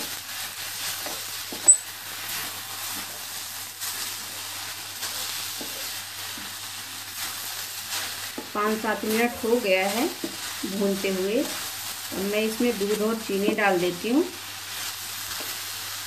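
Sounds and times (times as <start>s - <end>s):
carrots sizzling in ghee: 0.0s - 16.0s
sharp clink: 1.6s - 1.9s.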